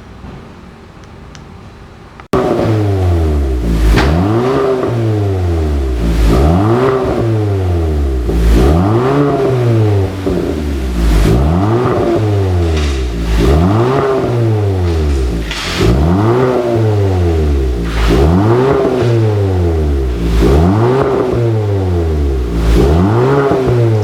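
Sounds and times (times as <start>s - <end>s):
car engine revving: 2.4s - 24.0s.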